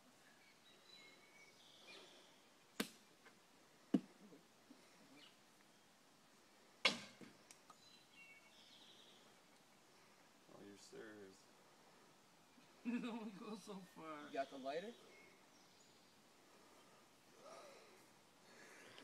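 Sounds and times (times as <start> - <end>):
faint bird chirps: 0.1 - 2.6, 7.7 - 10.8, 13.7 - 18.0.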